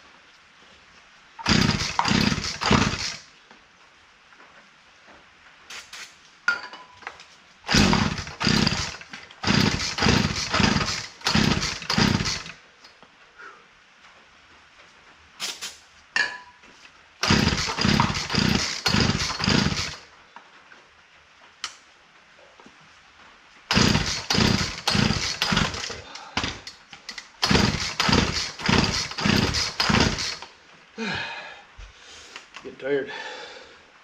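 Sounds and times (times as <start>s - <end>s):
chainsaw engine cranking: 1.4s - 3.3s, 7.7s - 12.6s, 17.2s - 20.1s, 23.7s - 30.5s
chainsaw recoil starter pulls: 1.4s - 3.3s, 7.7s - 12.6s, 17.2s - 20.1s, 23.7s - 30.5s.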